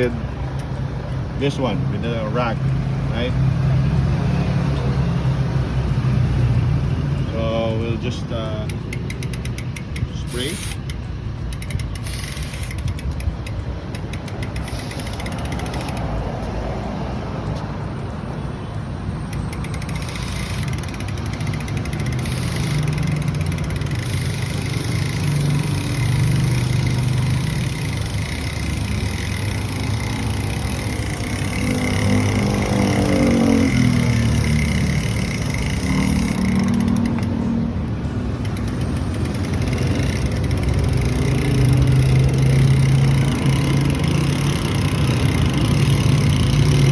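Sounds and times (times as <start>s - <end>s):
vehicle engine running: 19.4s - 46.9s.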